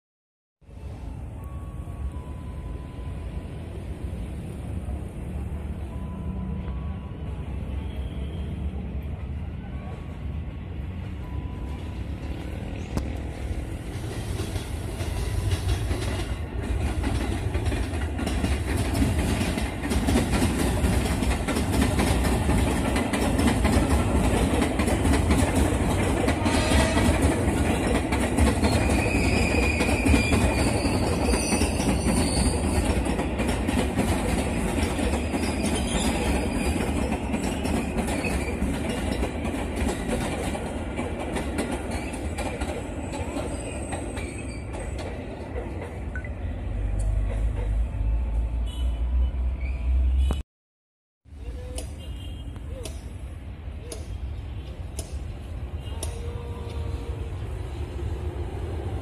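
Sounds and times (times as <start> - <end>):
train wheels clattering on rails: 12.9 - 46.2, 46.9 - 48.0
high wheel squeal: 28.6 - 33.2, 34.9 - 39.2, 43.0 - 45.0.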